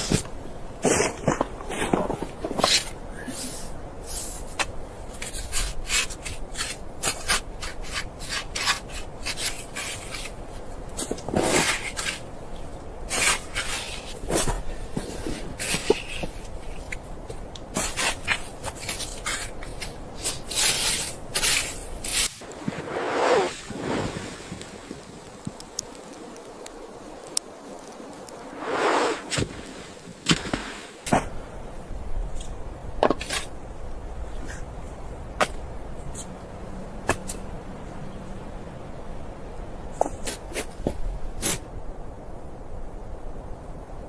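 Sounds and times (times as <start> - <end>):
rubbing and scraping strokes: 0.0 - 12.3, 13.1 - 24.4
low steady rumble: 31.1 - 43.9.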